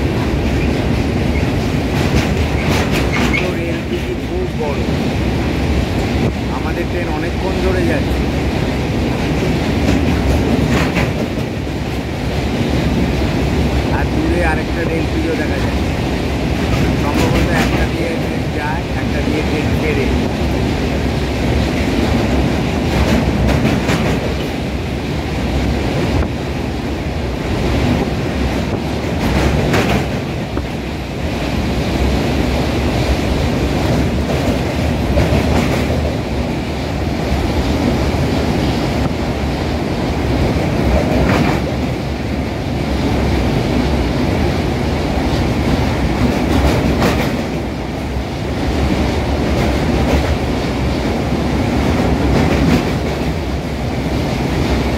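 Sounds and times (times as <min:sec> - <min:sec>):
train wheels rumbling on bridge: 0:00.0 - 0:54.9
sharp clacks: 0:01.6 - 0:04.1, 0:09.8 - 0:11.6, 0:28.7 - 0:30.3, 0:46.2 - 0:47.6.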